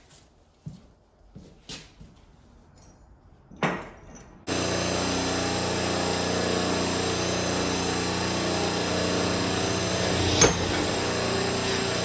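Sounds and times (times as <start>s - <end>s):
shop machine motor running: 4.5s - 12.0s.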